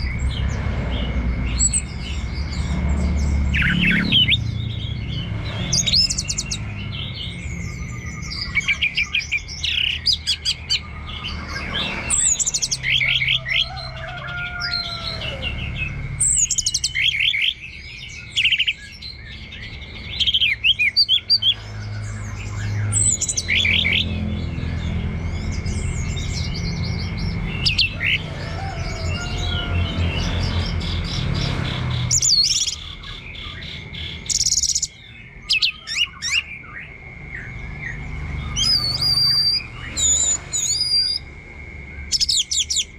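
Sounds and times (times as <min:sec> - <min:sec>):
thrush singing: 0:00.0 - 0:42.9.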